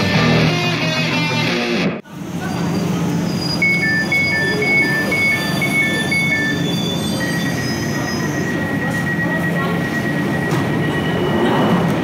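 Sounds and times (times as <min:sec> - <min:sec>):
train equipment humming: 0:02.1 - 0:12.0
alternating high-low electronic beeping: 0:03.6 - 0:07.6
steady high tone: 0:03.6 - 0:11.9.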